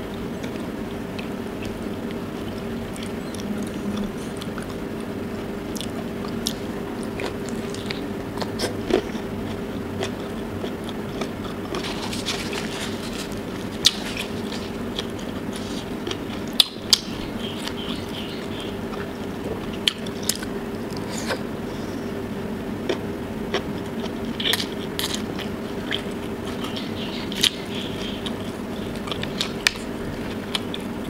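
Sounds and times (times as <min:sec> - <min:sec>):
wet chewing: 0:05.7 - 0:21.5, 0:22.8 - 0:31.0
lip-smacks and clicks: 0:29.0 - 0:29.9.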